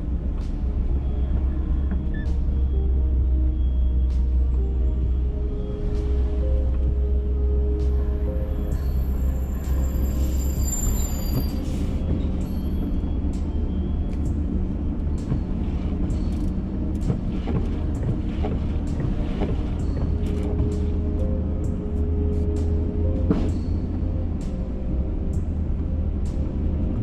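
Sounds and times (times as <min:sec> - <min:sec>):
vehicle rumbling: 0:00.0 - 0:27.0.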